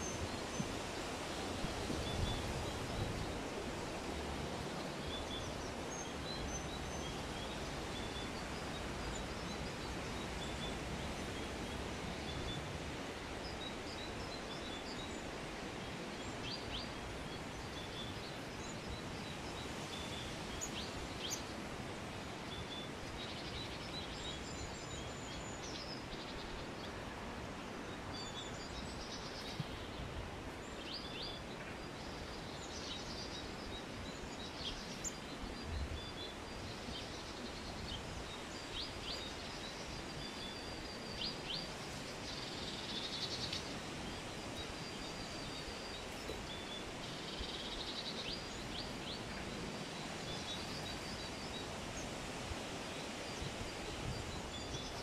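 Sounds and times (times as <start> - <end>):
outdoor background hiss: 0.0 - 55.0
small birds chirping: 27.9 - 55.0.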